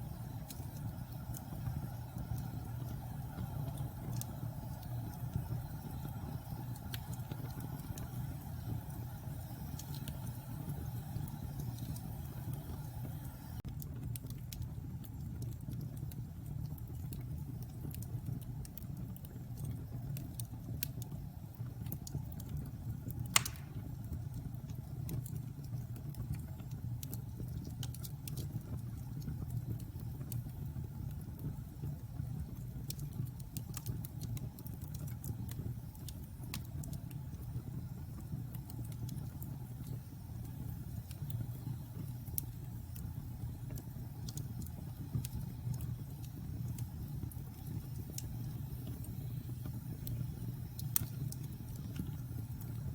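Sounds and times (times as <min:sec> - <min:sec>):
fire roaring: 0:00.0 - 0:13.6, 0:16.7 - 0:24.2
fire crackling: 0:00.0 - 0:52.9
loud sharp pop: 0:23.4 - 0:23.8.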